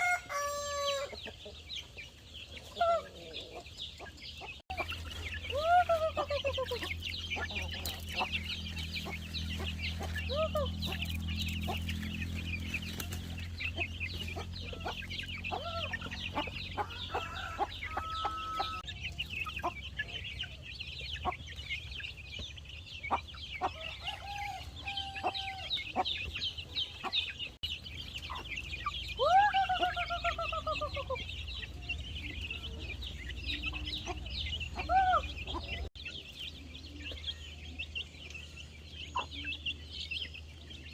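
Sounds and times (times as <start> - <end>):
rooster crowing: 0.0 - 1.1, 16.8 - 18.9, 23.8 - 25.8
chickens clucking: 0.0 - 40.9.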